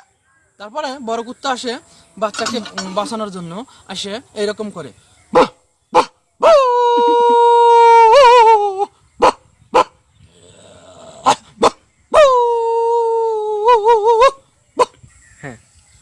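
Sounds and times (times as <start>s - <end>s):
man imitating dog barks: 5.3s - 7.3s, 8.0s - 9.9s, 11.2s - 12.5s, 13.6s - 15.0s
man howling like a dog: 5.4s - 9.4s, 12.1s - 14.9s.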